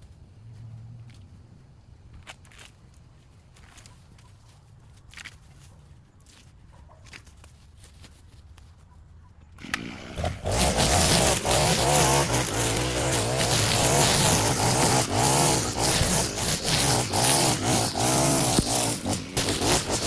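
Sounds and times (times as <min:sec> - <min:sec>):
small petrol engine running: 0:09.6 - 0:20.0.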